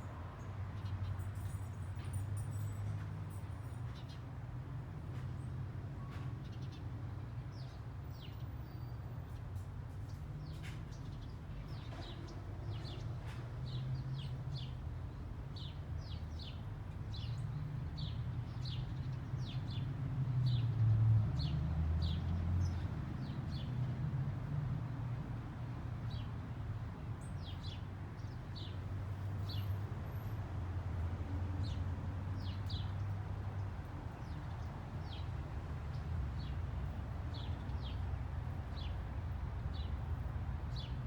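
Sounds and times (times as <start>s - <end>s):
small birds chirping: 32.4s - 35.3s, 35.9s - 39.0s, 39.7s - 41.0s.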